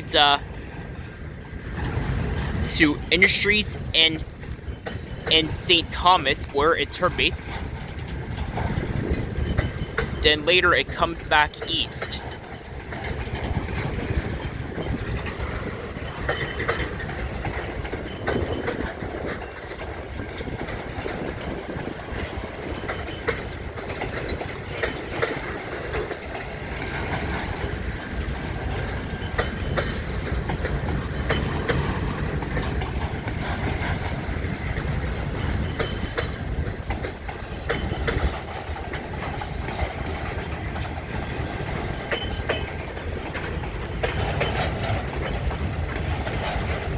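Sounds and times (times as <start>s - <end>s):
freight train rolling past: 0.0s - 46.9s
wheels clicking over rail joints: 0.0s - 46.9s.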